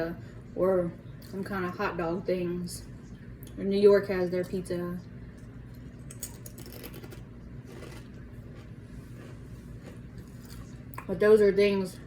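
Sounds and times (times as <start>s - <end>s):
low steady hum: 0.0s - 12.0s
chips crunching being chewed: 5.7s - 11.1s.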